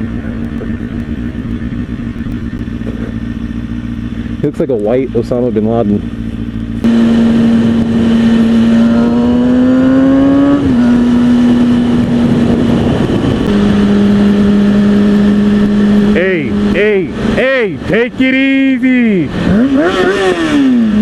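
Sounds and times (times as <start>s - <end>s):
motorcycle engine at high revs: 0.0s - 21.0s
wind noise: 6.8s - 16.2s.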